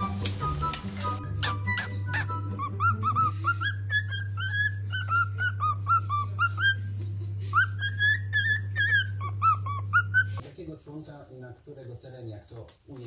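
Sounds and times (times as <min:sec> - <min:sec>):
parrot chirping: 0:00.0 - 0:01.2.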